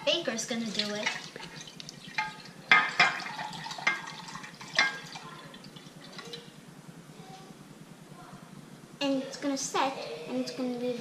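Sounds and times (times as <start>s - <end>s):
liquid trickling and splashing: 0.6s - 6.5s.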